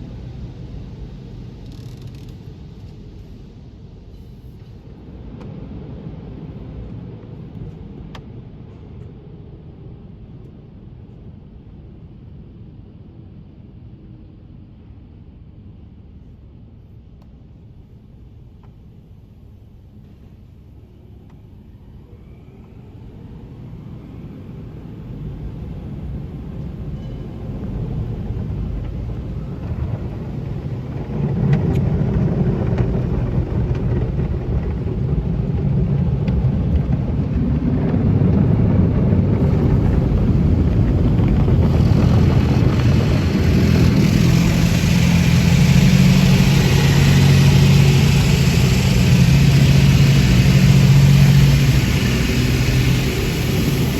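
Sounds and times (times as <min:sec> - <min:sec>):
car wash machinery rumbling: 0:22.9 - 0:53.9
low hum: 0:26.9 - 0:53.9
hiss: 0:39.5 - 0:53.9.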